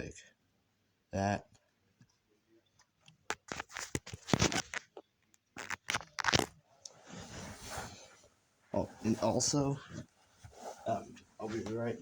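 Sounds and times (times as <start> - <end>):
soft rustle: 5.6 - 12.0.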